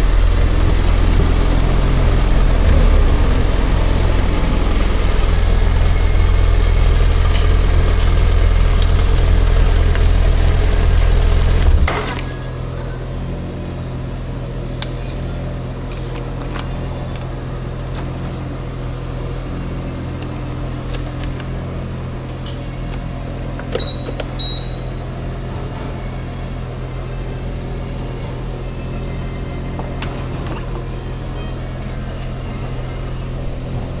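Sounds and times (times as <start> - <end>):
motorcycle engine idling: 0.0 - 34.0
high double beep: 23.8 - 24.9.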